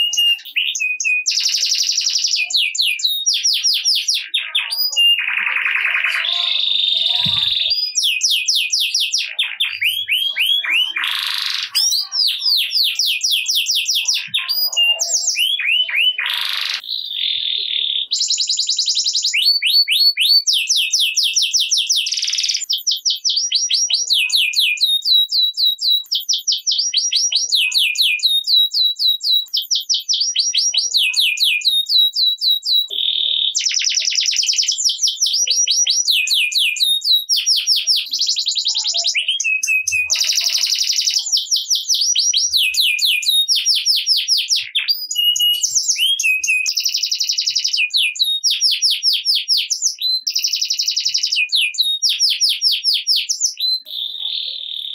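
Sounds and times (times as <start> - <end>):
canary singing trills: 0.0 - 54.9.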